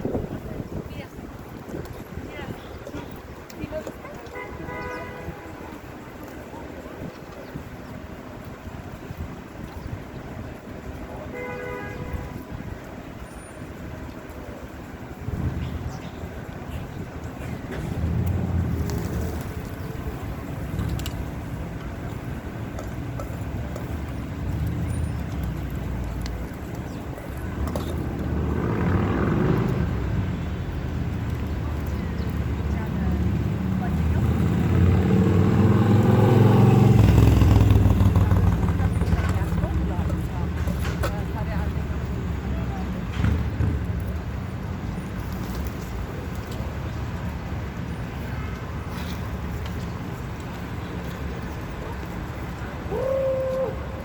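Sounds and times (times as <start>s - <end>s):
road traffic rumbling: 0.0s - 54.0s
vehicle passing close: 27.7s - 31.5s, 32.4s - 41.0s.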